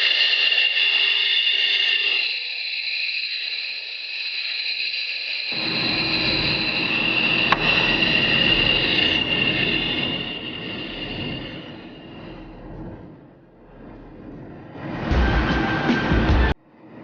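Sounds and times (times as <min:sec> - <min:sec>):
hiss: 0:00.0 - 0:12.3
high whine: 0:05.5 - 0:16.9
low rumble: 0:05.6 - 0:16.6.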